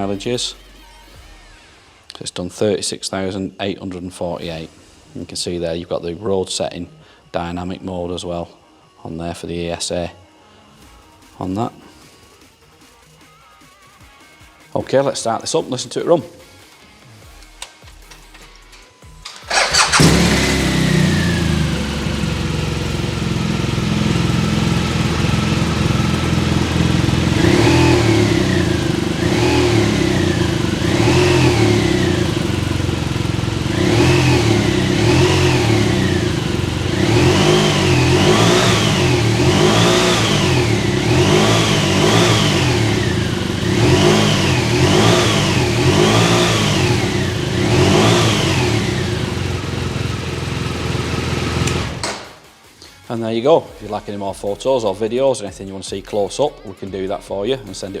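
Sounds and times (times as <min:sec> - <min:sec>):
motorcycle engine starting and revving: 0:19.2 - 0:52.4.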